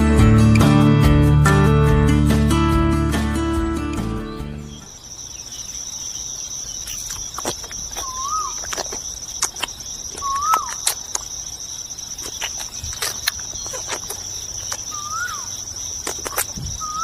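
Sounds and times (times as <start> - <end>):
crickets trilling: 2.6 - 17.0
whistled bird calls: 4.3 - 8.7, 10.2 - 10.9, 13.5 - 15.6, 16.4 - 17.0
sharp clicks: 6.9 - 11.4.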